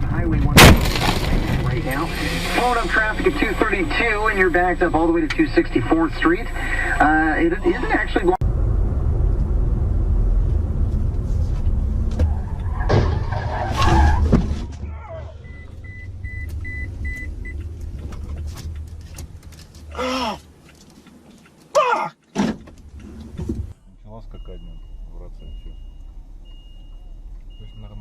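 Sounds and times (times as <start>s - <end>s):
car engine and road rumble: 0.0s - 28.0s
car warning beeper: 1.8s - 8.4s, 15.3s - 17.6s, 23.7s - 28.0s.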